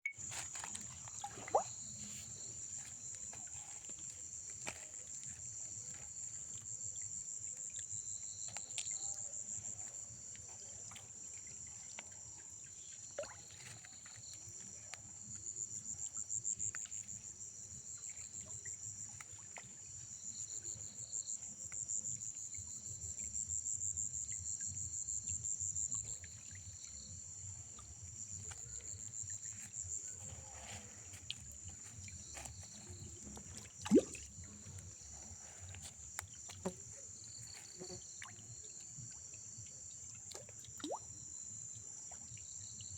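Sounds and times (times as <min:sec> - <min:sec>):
insects chirring: 0:00.1 - 0:42.9.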